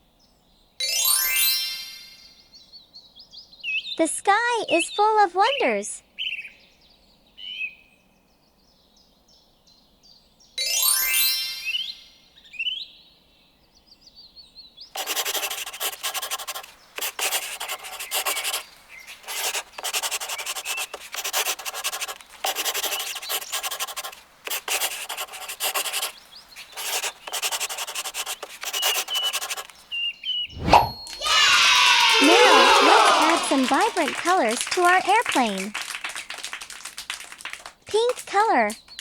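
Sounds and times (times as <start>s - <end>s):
drawing tool scratching paper: 15.0s - 29.8s.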